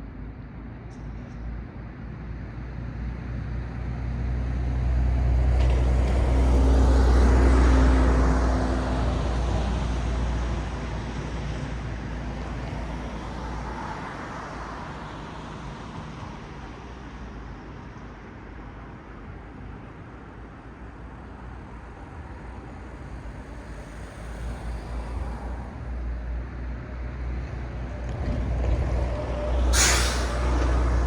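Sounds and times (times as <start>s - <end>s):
low traffic rumble: 0.0s - 31.0s
car passing close by: 28.1s - 31.0s.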